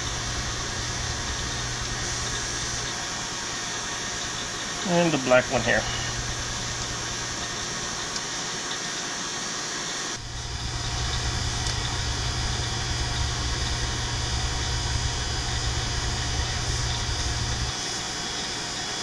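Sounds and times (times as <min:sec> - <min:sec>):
low rumble: 0:00.0 - 0:04.8, 0:05.8 - 0:08.1, 0:10.2 - 0:17.7
vacuum pump running: 0:00.0 - 0:19.0.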